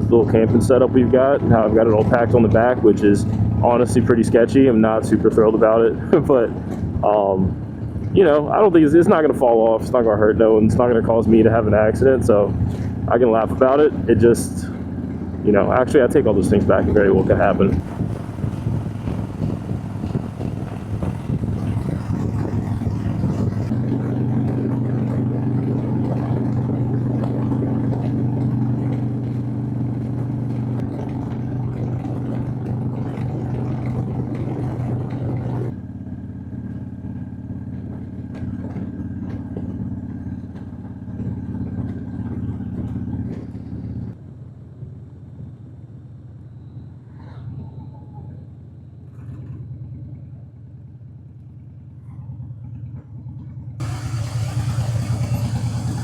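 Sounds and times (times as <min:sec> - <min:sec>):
motorcycle engine running: 0:00.0 - 0:47.0, 0:48.2 - 0:56.0
wind rushing: 0:17.8 - 0:23.7.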